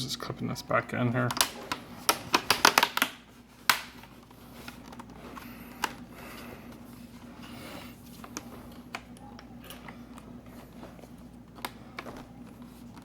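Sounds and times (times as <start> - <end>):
plastic case snapping into clips: 1.3 - 3.9.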